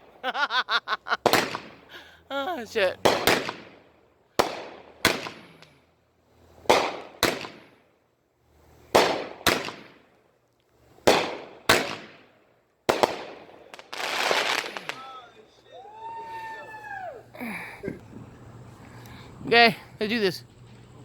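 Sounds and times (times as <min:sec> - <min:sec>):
fireworks bangs echoing: 0:01.2 - 0:02.0, 0:02.6 - 0:05.9, 0:06.5 - 0:07.9, 0:08.8 - 0:10.2, 0:10.9 - 0:16.7.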